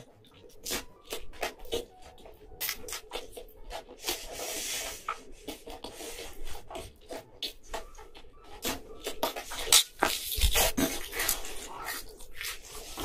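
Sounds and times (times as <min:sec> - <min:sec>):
close chewing with wet mouth clicks: 0:00.0 - 0:04.0.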